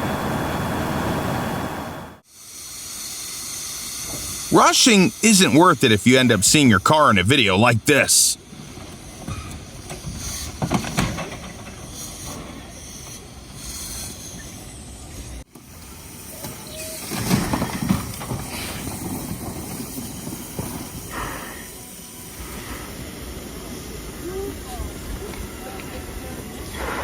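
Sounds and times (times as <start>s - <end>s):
train hissing: 18.4s - 27.0s.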